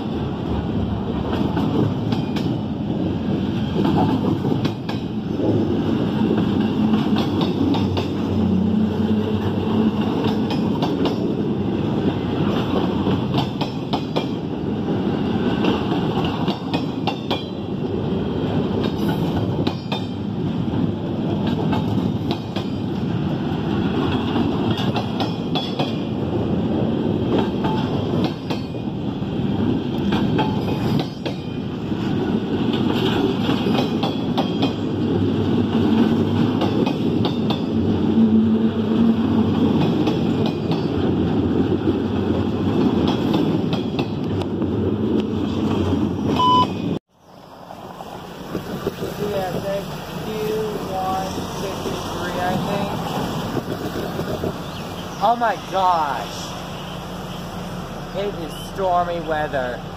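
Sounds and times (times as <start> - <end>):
train wheels rumbling on rails: 0.0 - 59.9
wheels clicking over rail joints: 0.9 - 29.0, 29.6 - 38.0, 39.1 - 47.0.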